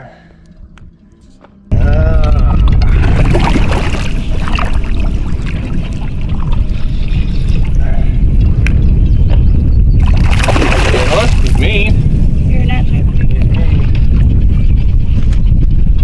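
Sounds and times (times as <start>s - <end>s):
wind rumbling on microphone: 1.7s - 16.0s
water splashing and sloshing: 2.5s - 7.8s, 10.0s - 11.8s.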